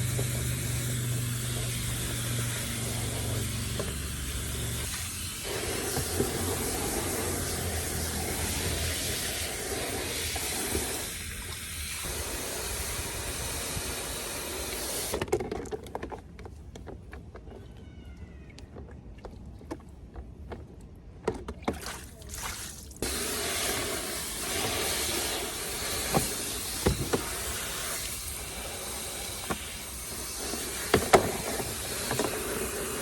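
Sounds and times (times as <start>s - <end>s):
tap water running: 0.0s - 15.2s, 22.5s - 33.0s.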